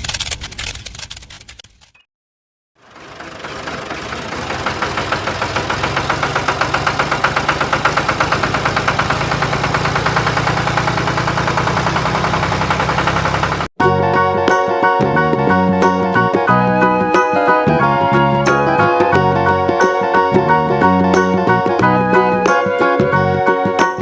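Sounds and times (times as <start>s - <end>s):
engine knocking: 2.8s - 13.7s.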